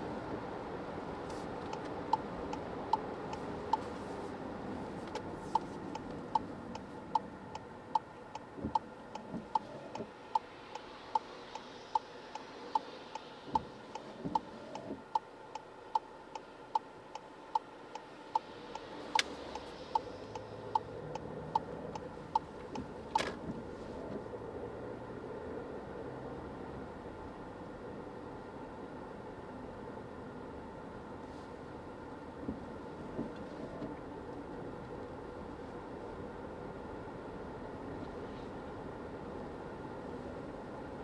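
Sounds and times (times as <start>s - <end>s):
road noise inside car: 0.0s - 41.0s
turn-signal indicator clicking: 5.1s - 10.4s, 11.1s - 23.8s.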